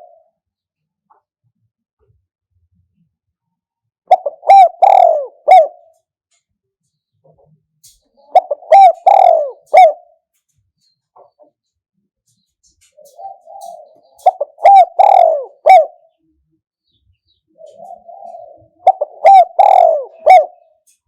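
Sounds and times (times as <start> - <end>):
dove cooing: 0.0 - 0.3, 4.1 - 6.0, 8.1 - 10.2, 12.8 - 16.3, 17.5 - 21.0.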